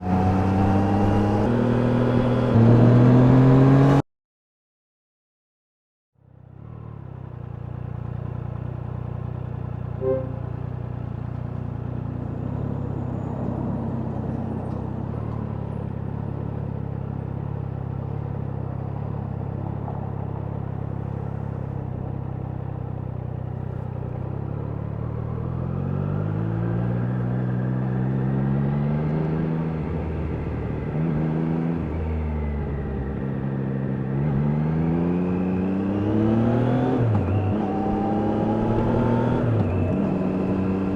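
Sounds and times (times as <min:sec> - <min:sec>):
short tone: 0:10.0 - 0:10.9
motorcycle engine revving: 0:22.6 - 0:40.9.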